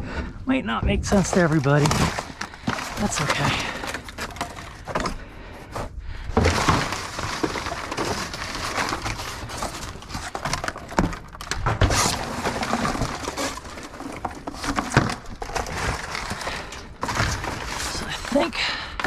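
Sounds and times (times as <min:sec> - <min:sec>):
heavy thumps: 0:00.6 - 0:05.2
debris clattering in a dumpster: 0:00.9 - 0:05.2, 0:06.2 - 0:19.0.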